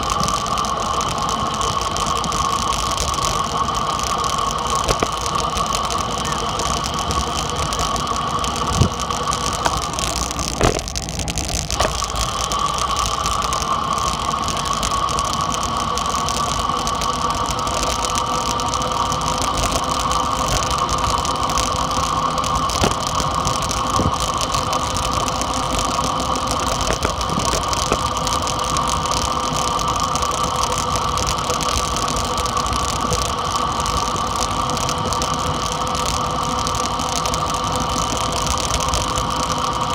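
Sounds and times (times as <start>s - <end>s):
faint clicks: 0.0s - 39.9s
dirt bike engine running: 3.5s - 30.2s.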